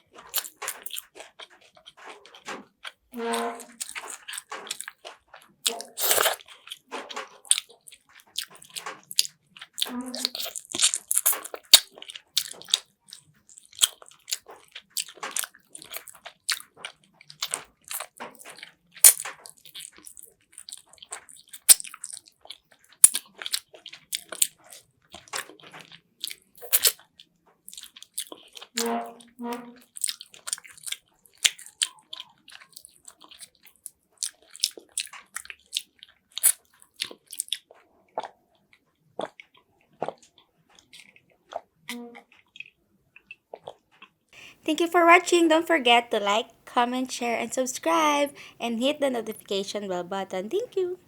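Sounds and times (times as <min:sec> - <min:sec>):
crunchy chewing and biting: 0:00.1 - 0:03.0, 0:03.8 - 0:28.8, 0:29.8 - 0:38.4.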